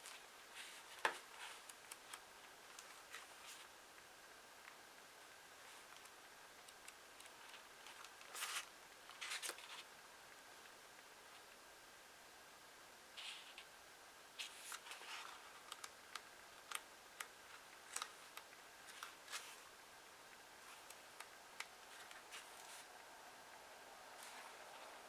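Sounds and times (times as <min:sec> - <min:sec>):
paper rustling: 0:07.4 - 0:09.8, 0:20.6 - 0:22.9
paper ticks and snaps: 0:15.6 - 0:19.4.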